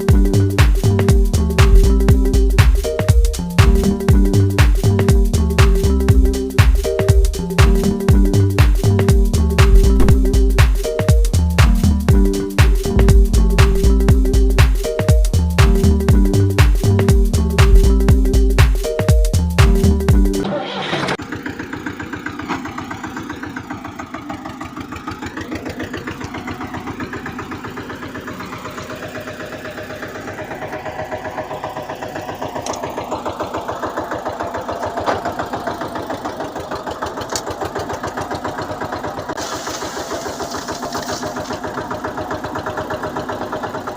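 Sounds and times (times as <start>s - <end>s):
tractor engine idling: 0.0s - 18.6s, 19.4s - 43.9s
high whine rising in pitch: 9.6s - 10.6s, 12.9s - 14.6s.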